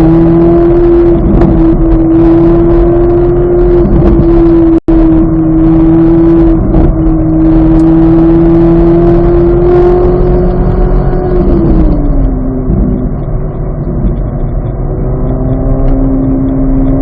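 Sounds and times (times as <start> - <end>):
sports car engine at high revs: 0.0 - 17.0.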